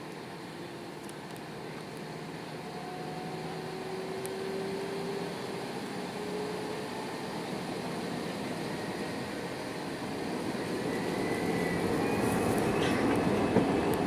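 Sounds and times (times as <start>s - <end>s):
jet engine cabin rush: 5.3s - 14.0s.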